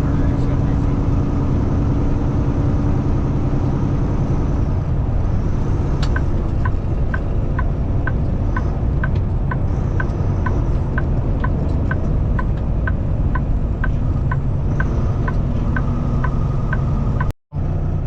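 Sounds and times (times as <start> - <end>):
road noise: 0.0 - 18.0
truck engine rumble: 0.0 - 18.0
turn signal clicking: 5.9 - 17.3.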